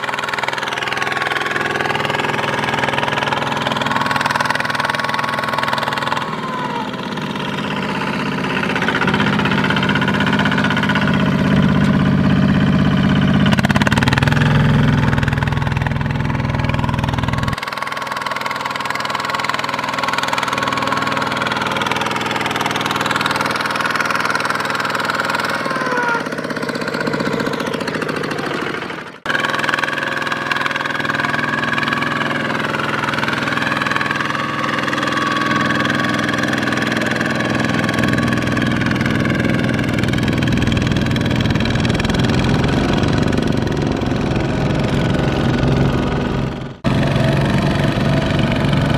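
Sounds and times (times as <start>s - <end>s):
diesel engines knocking: 0.0s - 48.9s
heavy low throb: 31.2s - 48.9s.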